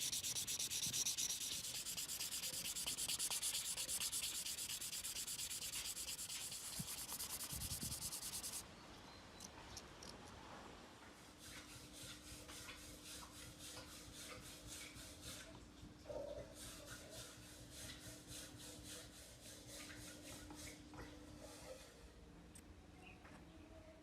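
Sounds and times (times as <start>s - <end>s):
hand sanding strokes: 0.0s - 8.6s, 11.4s - 15.5s, 16.6s - 20.8s.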